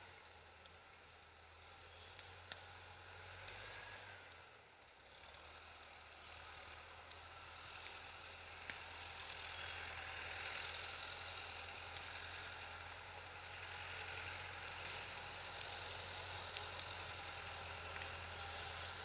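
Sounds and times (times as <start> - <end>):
faint tractor diesel engine idling: 5.4 - 19.0.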